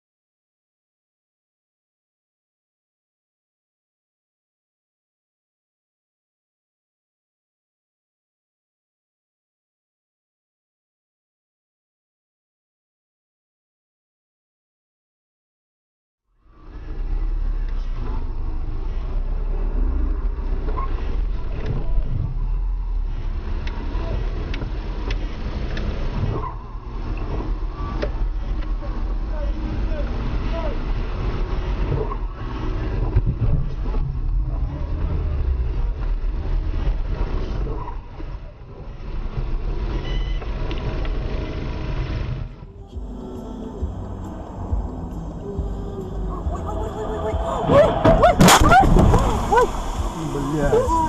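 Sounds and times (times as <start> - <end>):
road noise: 16.3 - 51.0
car engine rumble: 16.4 - 51.0.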